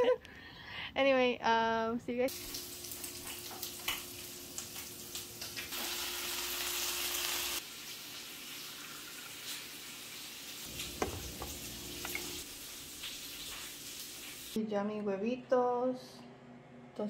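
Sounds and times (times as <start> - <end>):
rain hissing: 2.3 - 14.6
kitchen handling sounds: 10.7 - 12.5.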